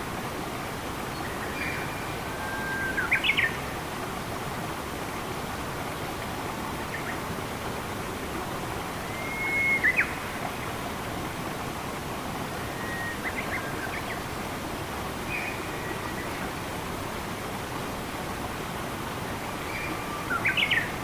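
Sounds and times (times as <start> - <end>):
running water: 0.0 - 21.0
bird whistling: 9.2 - 10.1, 12.7 - 13.3.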